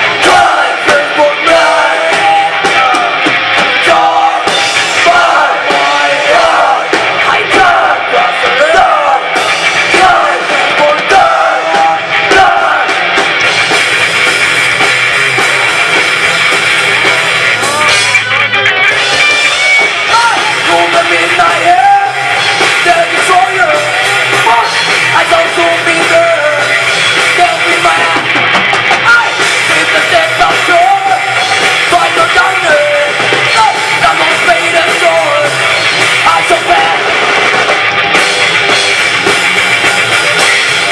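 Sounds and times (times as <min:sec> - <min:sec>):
distorted electric guitar: 0:00.0 - 0:40.9
drum kit: 0:00.0 - 0:40.9
rock band playing: 0:00.0 - 0:40.9
person singing: 0:29.0 - 0:37.3.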